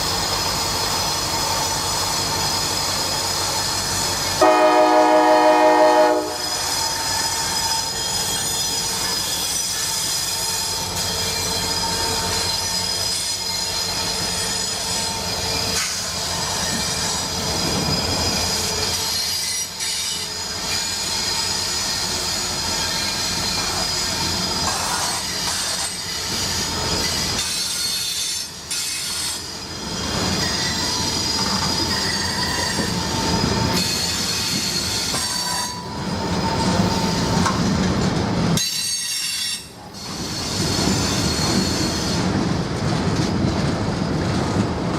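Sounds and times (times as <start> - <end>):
steel wheels squealing on rail: 0.0 - 44.6
train rolling past: 0.0 - 44.9
train air horn: 4.4 - 6.7.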